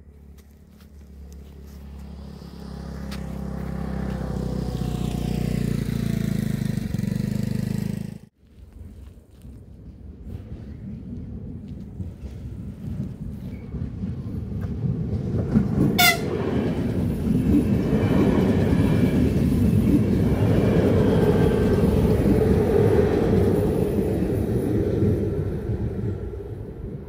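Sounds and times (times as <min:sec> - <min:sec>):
passing train rumble: 0:00.0 - 0:27.0
train horn toot: 0:16.0 - 0:16.4.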